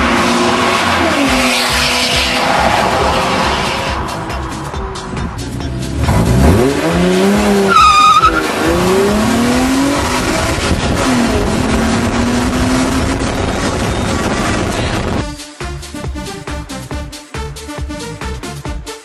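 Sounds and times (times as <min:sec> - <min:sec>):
car engine accelerating hard: 0:00.0 - 0:15.2.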